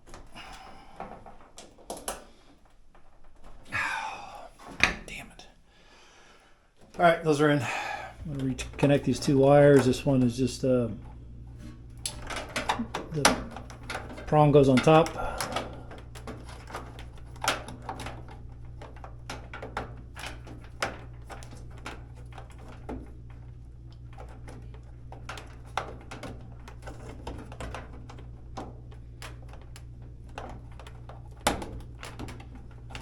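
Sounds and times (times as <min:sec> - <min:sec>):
steady low hum: 0:03.3 - 0:33.0.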